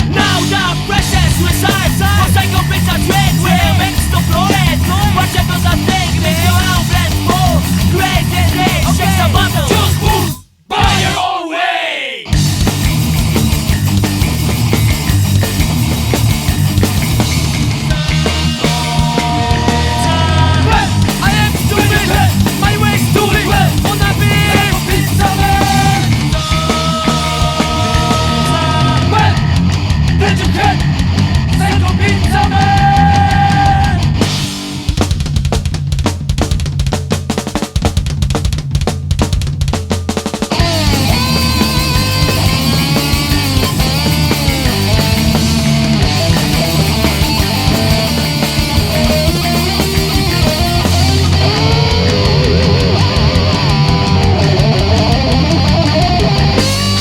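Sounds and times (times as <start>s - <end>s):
heavy rock band playing: 0.0s - 57.0s
long high guitar notes: 40.6s - 57.0s.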